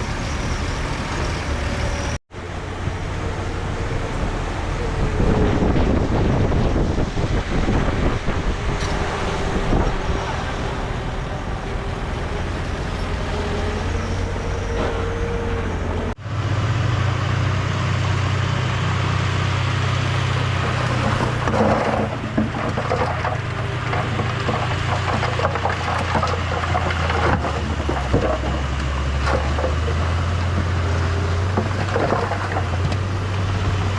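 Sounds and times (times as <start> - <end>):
deep engine drone: 0.0 - 33.9
diesel earthmoving machinery running: 0.0 - 33.9.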